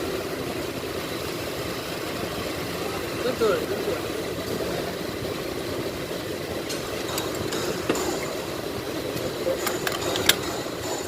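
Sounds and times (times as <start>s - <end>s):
metallic clicks of hand tools: 9.6s - 10.6s.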